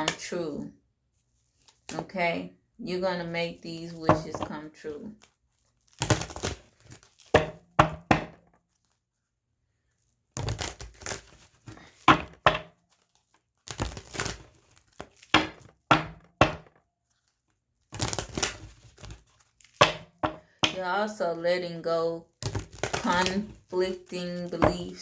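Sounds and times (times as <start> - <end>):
cards being shuffled: 10.4 - 12.1, 18.0 - 19.8.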